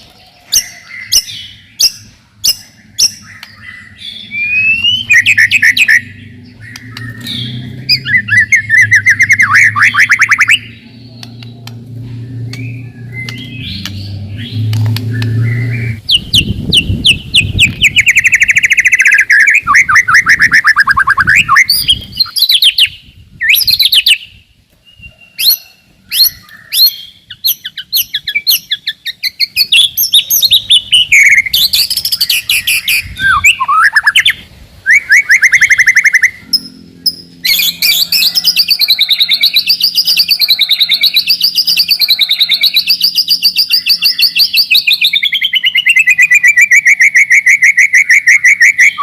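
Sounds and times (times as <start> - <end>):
bird singing fast runs: 0.0 - 25.5, 26.1 - 49.0
low hum: 2.1 - 18.6, 35.5 - 38.5.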